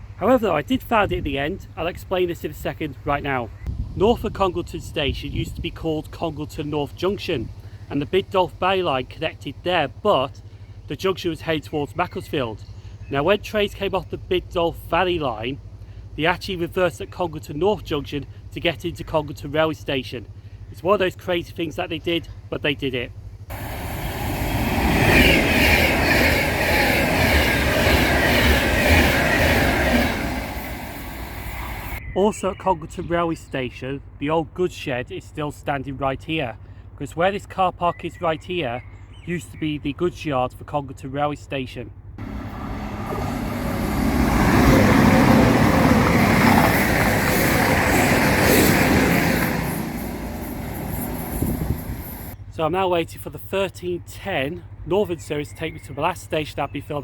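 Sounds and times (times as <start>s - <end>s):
train rumbling past: 23.2s - 32.0s, 42.2s - 52.4s
wheels clattering: 23.2s - 32.0s, 42.2s - 52.4s
wheels squealing on rails: 23.2s - 32.1s, 42.2s - 52.4s
vehicle passing close by: 23.5s - 32.0s, 42.2s - 52.4s.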